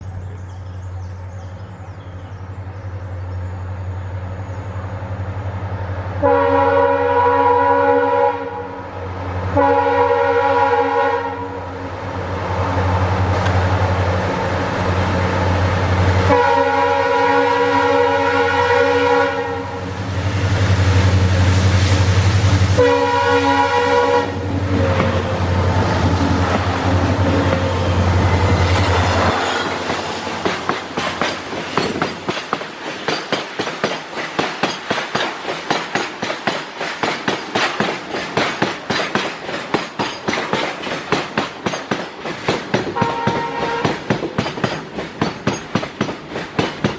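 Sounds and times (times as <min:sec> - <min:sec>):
diesel locomotive engines droning: 0:00.0 - 0:46.9
locomotive horn blasts: 0:06.2 - 0:08.9, 0:09.5 - 0:11.8, 0:16.1 - 0:19.9, 0:22.8 - 0:25.6, 0:43.0 - 0:44.1.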